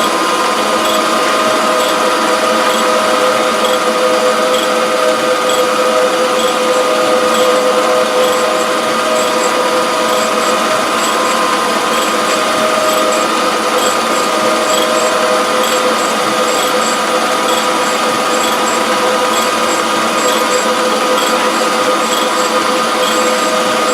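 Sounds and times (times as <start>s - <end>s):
surface grinder humming: 0.0s - 23.9s
light high ticks: 3.6s - 3.8s, 4.5s - 4.7s, 5.5s - 5.7s, 6.4s - 6.6s, 7.3s - 7.6s, 8.2s - 8.5s, 12.8s - 13.2s, 13.8s - 14.0s, 14.7s - 21.5s, 22.1s - 23.3s.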